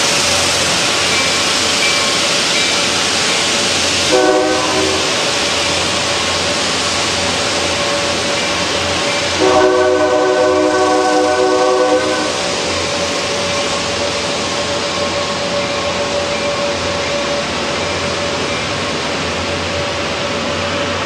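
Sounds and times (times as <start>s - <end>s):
train rolling: 0.0s - 21.0s
train horn blasts: 4.1s - 5.3s, 9.4s - 12.5s.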